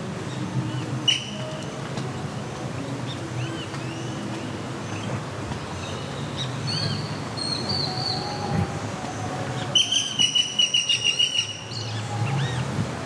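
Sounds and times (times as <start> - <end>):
birds whistling and chirping: 1.0 - 1.4, 5.8 - 8.8, 9.6 - 12.8.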